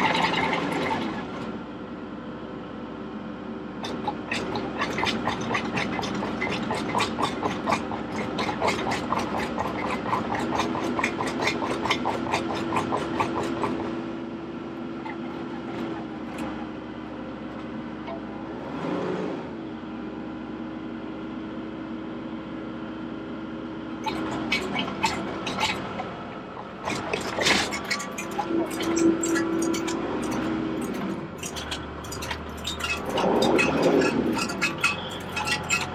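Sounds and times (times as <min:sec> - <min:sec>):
tractor engine running: 0:00.0 - 0:18.6, 0:20.6 - 0:35.9
fast regular clicking: 0:26.8 - 0:35.9.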